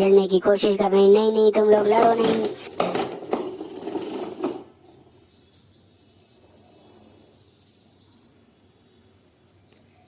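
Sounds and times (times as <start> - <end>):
high faint bird chirping: 4.8 - 10.0.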